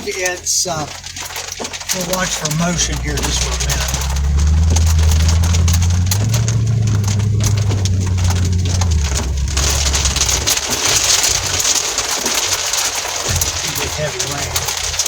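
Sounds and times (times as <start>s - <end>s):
heavy rain drumming on car roof: 0.0s - 15.0s
vehicle drone: 0.9s - 12.8s.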